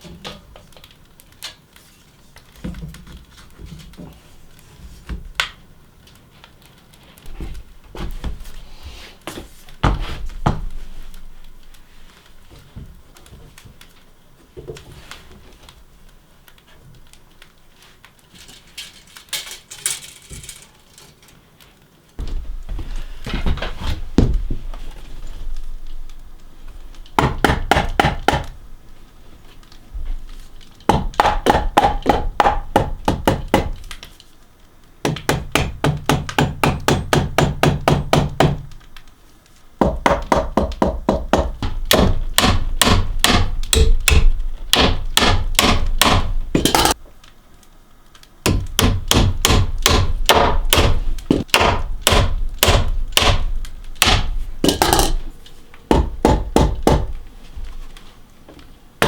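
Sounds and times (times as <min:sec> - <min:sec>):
fasteners driven into wood: 0:39.8 - 0:47.0, 0:48.5 - 0:55.2.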